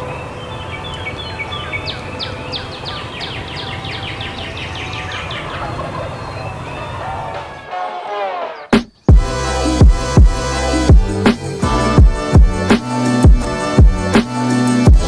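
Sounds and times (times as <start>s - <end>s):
turkey gobbling: 5.0s - 7.7s.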